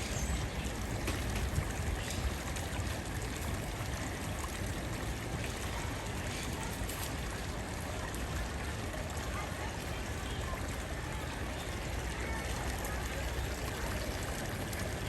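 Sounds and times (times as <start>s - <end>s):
running water: 0.0s - 15.0s.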